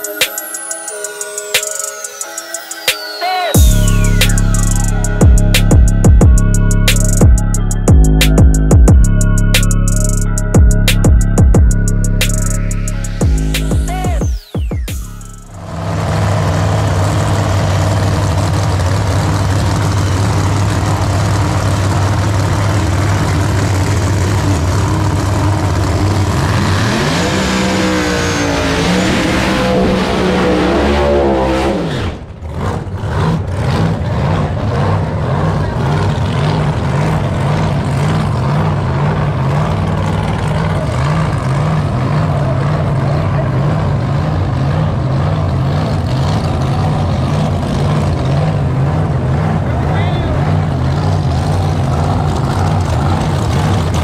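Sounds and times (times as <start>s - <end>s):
race car engine revving: 14.9s - 54.0s.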